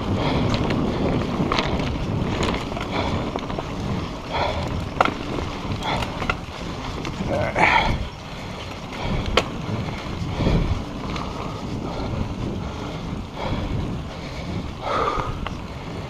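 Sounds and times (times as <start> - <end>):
bike knocks and rattles: 0.0 - 16.0
bike tyres rolling on dirt: 0.0 - 16.0
wind buffeting microphone: 0.0 - 16.0.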